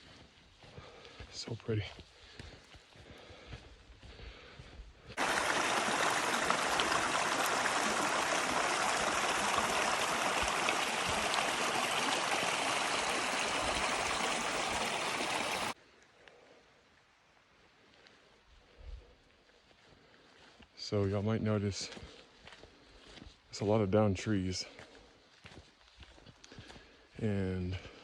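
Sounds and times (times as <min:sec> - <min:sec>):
stream water rushing: 0:05.2 - 0:15.8.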